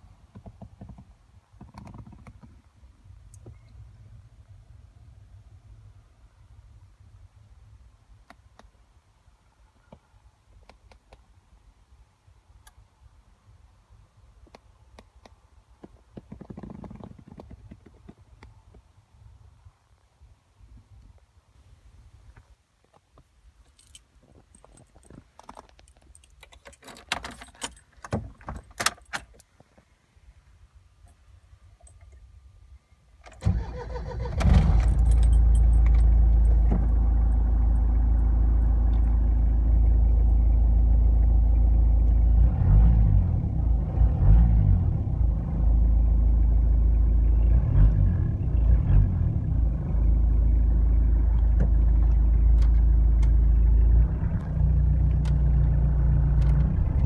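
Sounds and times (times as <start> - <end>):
keys jangling: 23.6 - 29.5, 34.8 - 36.6
diesel engine starting and idling: 33.2 - 57.0.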